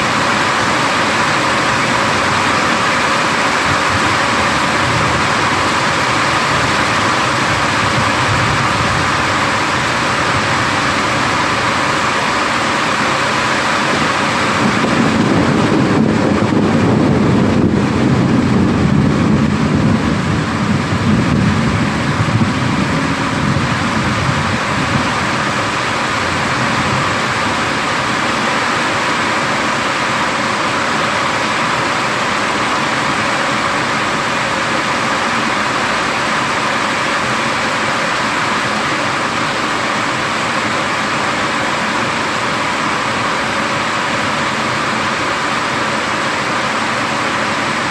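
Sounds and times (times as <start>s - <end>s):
rain hiss: 0.0s - 47.9s
rolling thunder: 1.6s - 12.4s, 14.0s - 28.5s.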